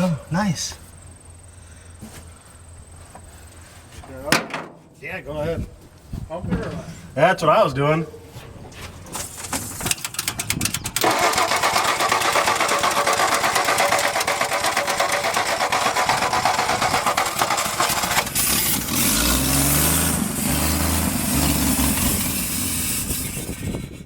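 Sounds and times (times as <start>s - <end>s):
engine cranking on starter: 8.6s - 24.0s
engine running unevenly: 11.0s - 24.0s.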